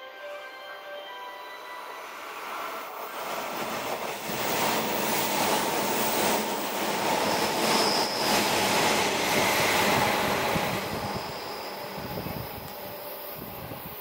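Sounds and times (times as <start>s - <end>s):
train rushing past: 0.5s - 14.0s
high squeal: 7.1s - 14.0s.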